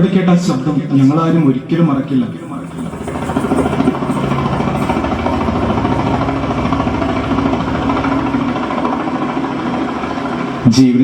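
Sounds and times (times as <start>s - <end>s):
helicopter rotor thudding: 1.0s - 9.0s.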